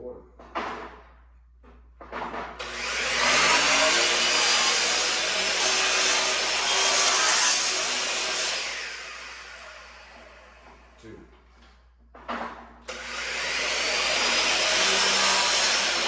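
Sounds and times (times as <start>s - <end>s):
power tool motor running: 2.6s - 10.6s, 12.9s - 16.0s.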